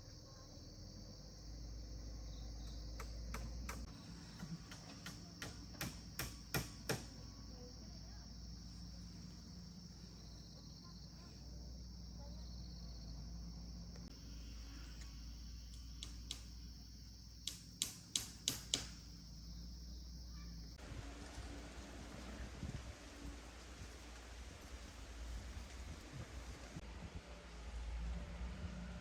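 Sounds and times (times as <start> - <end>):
insects chirring: 0.0 - 26.8
sharp knocks: 4.7 - 7.1, 17.5 - 19.1.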